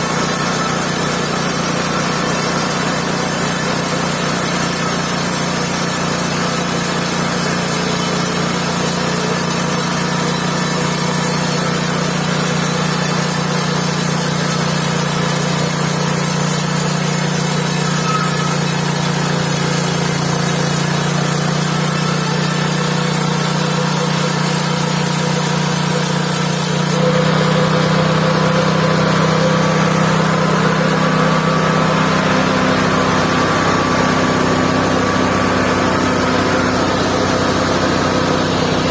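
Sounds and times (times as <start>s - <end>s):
band sawmill engine running: 0.0s - 38.9s.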